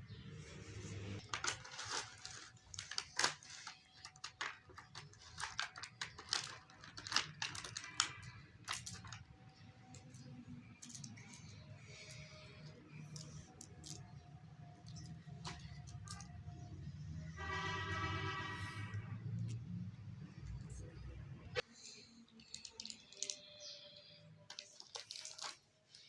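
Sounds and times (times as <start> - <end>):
packaging rustling: 1.2 - 16.5, 22.3 - 23.8, 24.5 - 26.0
toy parts clicking: 1.2 - 16.6, 22.3 - 26.0.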